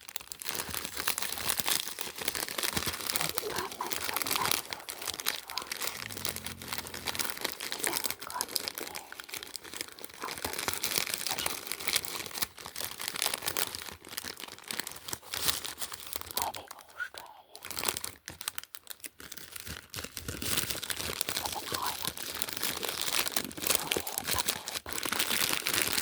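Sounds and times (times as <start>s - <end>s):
packaging crinkling and tearing: 0.0s - 16.6s, 17.2s - 26.0s.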